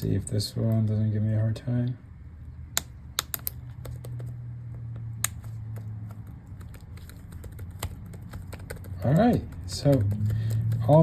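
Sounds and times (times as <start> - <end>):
low steady hum: 0.0 - 11.0
laptop keys clicking: 2.8 - 4.3, 5.2 - 11.0.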